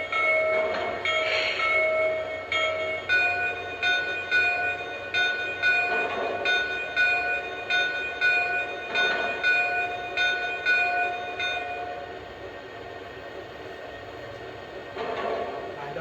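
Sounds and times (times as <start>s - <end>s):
locomotive bell ringing: 0.0s - 12.1s.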